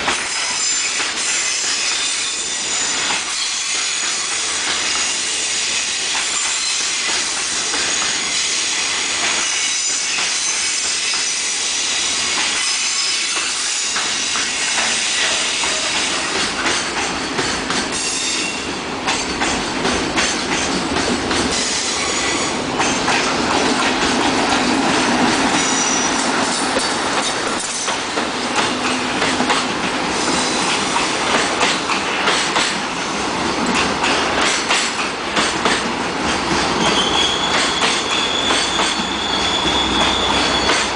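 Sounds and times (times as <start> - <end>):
high wheel squeal: 25.6 - 26.3, 36.6 - 40.9
wheels clicking over rail joints: 30.7 - 32.8, 33.6 - 39.1.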